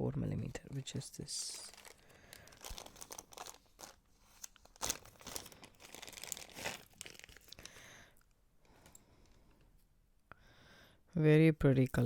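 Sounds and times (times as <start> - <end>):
packaging crinkling and rustling: 0.6 - 8.0.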